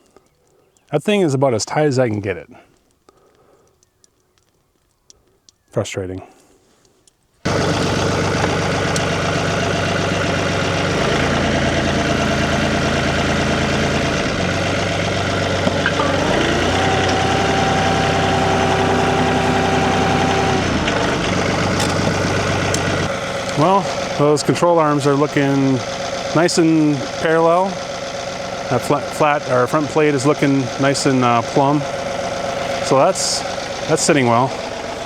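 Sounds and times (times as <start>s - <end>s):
tractor engine running: 7.4s - 35.0s
steady whine: 7.5s - 27.8s, 28.4s - 35.0s.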